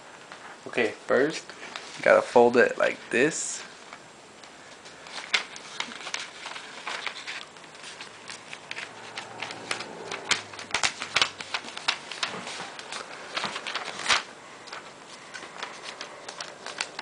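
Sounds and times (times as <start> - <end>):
paper being folded and creased: 4.9 - 17.0.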